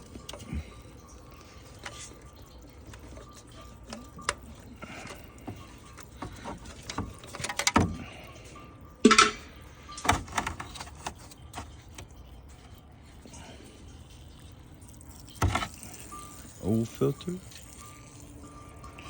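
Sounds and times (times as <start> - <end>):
clicks and knocks: 9.0 - 9.4
faint beeping tone: 15.1 - 19.0.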